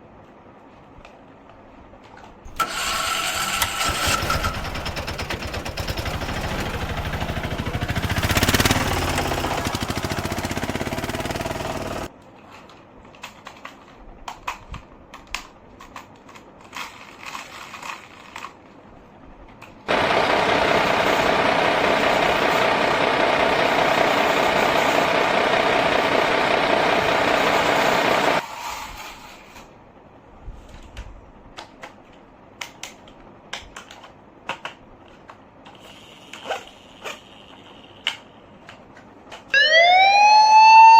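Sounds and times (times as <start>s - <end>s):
toy vehicle motor noise: 35.6s - 38.4s.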